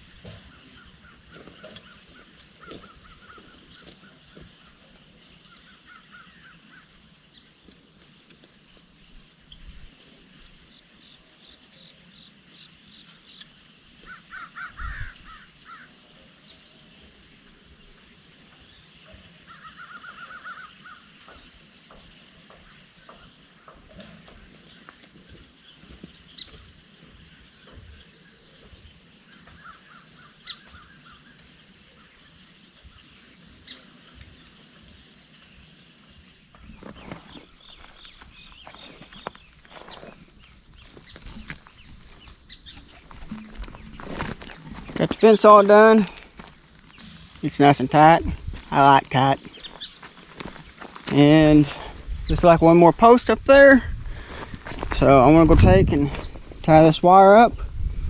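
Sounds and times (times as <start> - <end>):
steady high hiss: 0.0 - 58.0
bird calling harsh notes: 14.0 - 15.9, 19.5 - 21.1.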